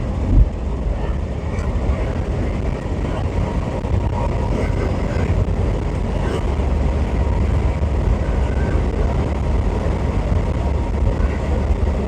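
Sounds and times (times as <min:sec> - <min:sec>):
road and engine rumble in vehicle: 0:00.0 - 0:12.0.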